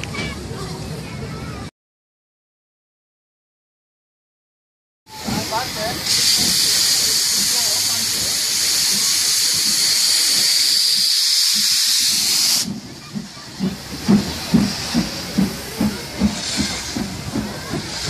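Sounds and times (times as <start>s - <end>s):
steam locomotive hissing steam: 5.1s - 18.0s.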